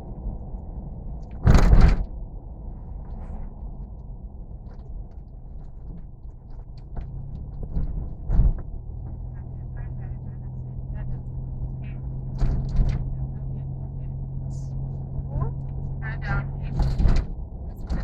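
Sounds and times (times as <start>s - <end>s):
vehicle rumbling: 0.0s - 18.0s
vehicle thump: 1.3s - 2.1s, 5.6s - 9.3s, 12.2s - 13.3s, 16.6s - 18.0s.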